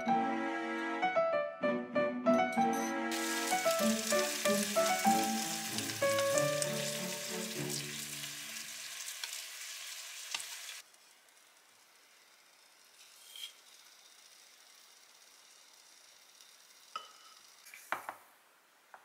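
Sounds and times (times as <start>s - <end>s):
soft piano music: 0.0s - 8.5s
eggplant sizzling in oil: 3.1s - 18.0s.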